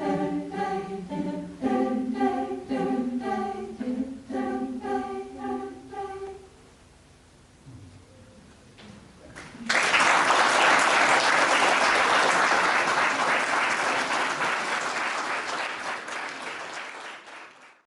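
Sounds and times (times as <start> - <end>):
audience applause: 9.4 - 17.8.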